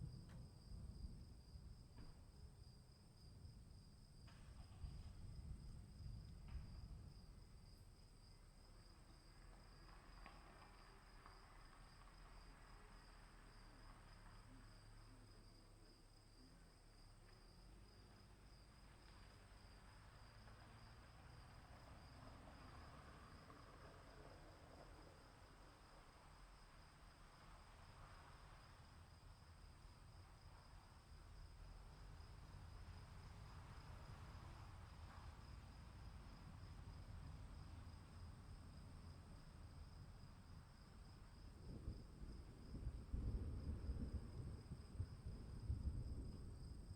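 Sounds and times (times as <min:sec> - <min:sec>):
crickets chirping: 0:00.0 - 0:46.9.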